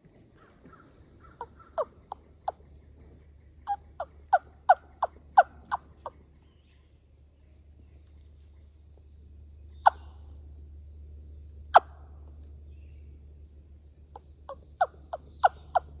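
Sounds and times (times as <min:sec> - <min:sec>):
turkey yelps: 0:00.4 - 0:06.4, 0:09.8 - 0:10.3, 0:11.7 - 0:12.2, 0:14.1 - 0:16.0.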